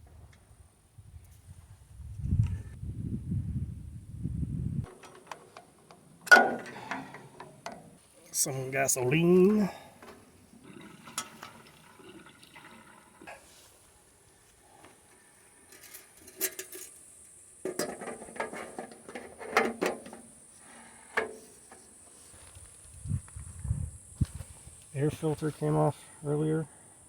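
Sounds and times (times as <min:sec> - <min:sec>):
clicks and knocks of can handling: 0:04.9 - 0:07.9, 0:17.6 - 0:20.3
gasoline pouring from a can: 0:10.6 - 0:13.6.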